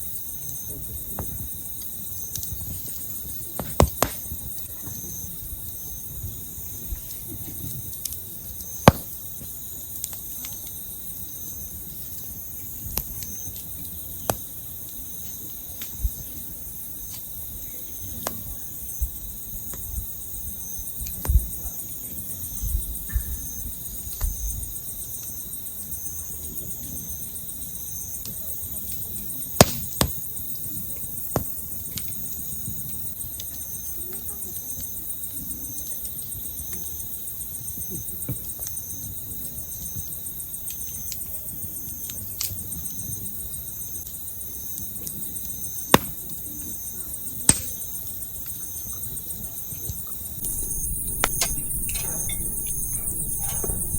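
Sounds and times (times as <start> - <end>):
sharp pops of fire: 3.6 - 4.5, 8.8 - 9.2, 50.4 - 53.9
campfire wood crackling: 50.4 - 53.9
insects chirping: 50.4 - 53.9
low rumble: 50.4 - 53.9.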